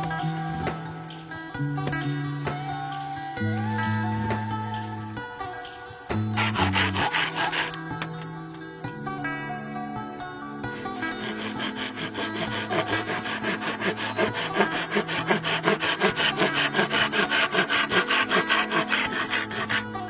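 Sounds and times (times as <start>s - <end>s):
hand saw cutting bamboo: 6.1s - 8.2s, 10.7s - 20.0s.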